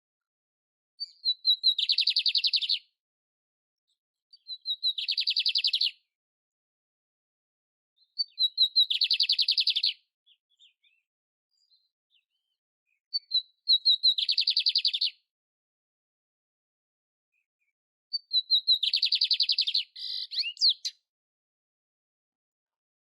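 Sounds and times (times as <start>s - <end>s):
canary singing trills: 1.0s - 2.8s, 4.3s - 6.0s, 8.0s - 11.0s, 11.6s - 15.2s, 18.1s - 21.0s.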